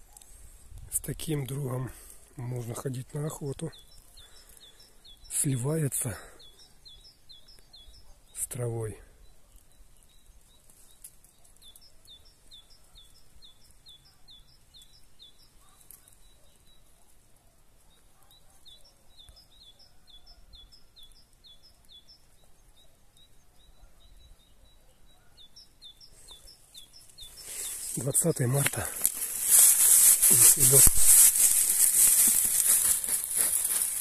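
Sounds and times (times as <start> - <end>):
faint outdoor hiss: 0.0 - 34.0
small bird chirping: 2.5 - 17.1, 17.8 - 34.0.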